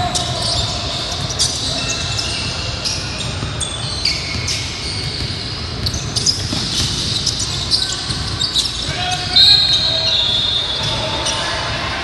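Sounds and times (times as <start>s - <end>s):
sneakers squeaking: 0.0s - 11.9s
basketball bouncing: 4.3s - 8.4s.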